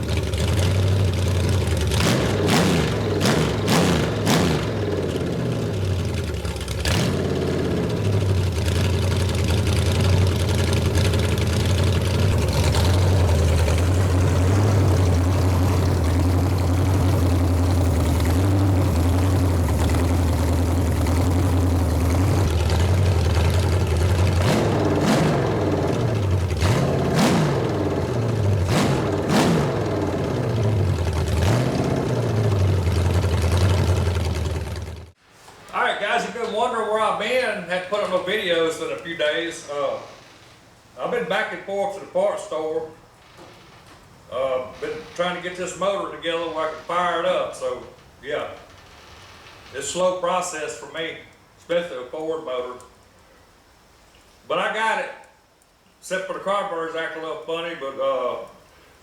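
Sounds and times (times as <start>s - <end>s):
car engine fast idle revving: 0.0s - 35.2s.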